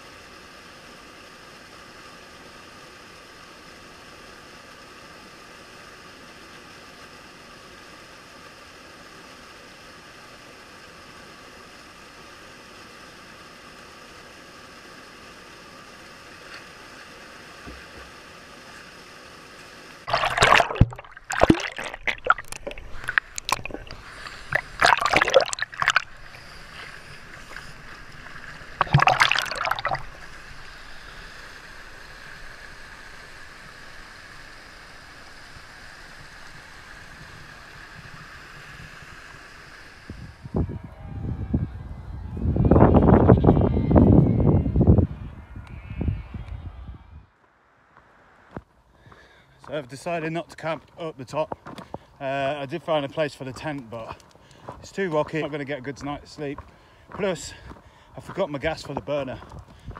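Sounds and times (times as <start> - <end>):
stream water rushing: 20.0 - 37.8
short bursts of noise: 20.1 - 36.2.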